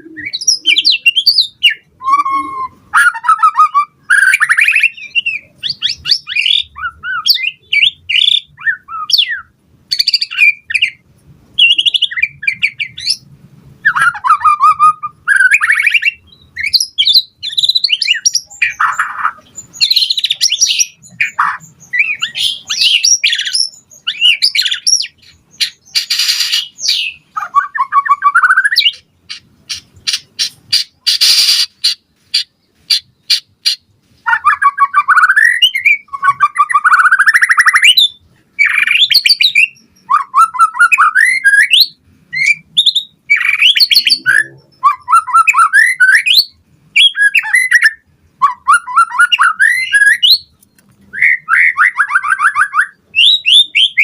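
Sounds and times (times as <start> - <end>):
bird singing varied song: 0.0 - 54.0
harsh scratchy bird call: 13.9 - 42.7.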